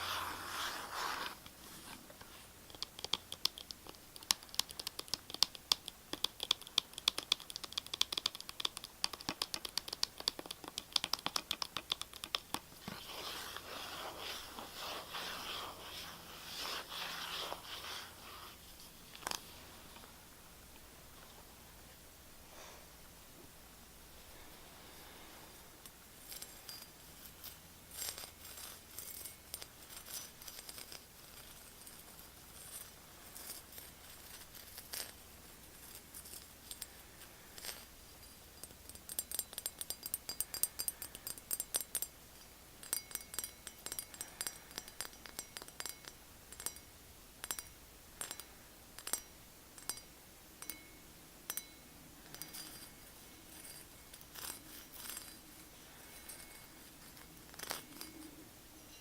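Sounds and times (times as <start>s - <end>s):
tapping on hard objects: 2.7s - 12.7s.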